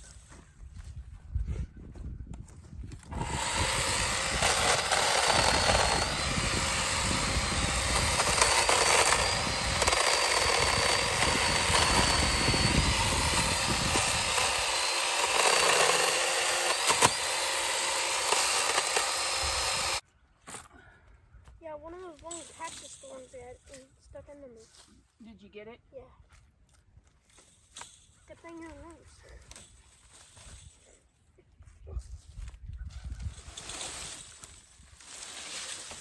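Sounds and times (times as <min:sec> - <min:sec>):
chainsaw cutting wood: 0:03.0 - 0:20.0, 0:33.3 - 0:36.0.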